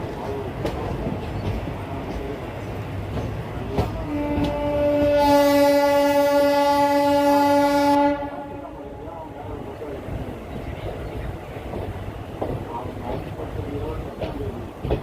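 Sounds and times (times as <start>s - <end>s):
moving train rumble: 0.0s - 15.0s
train horn blast: 3.9s - 9.0s.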